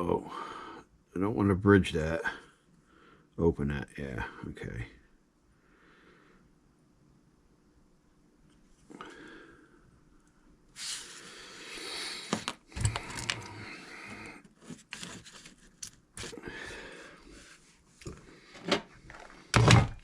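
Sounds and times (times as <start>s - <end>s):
rustling and crinkling: 12.3s - 16.4s.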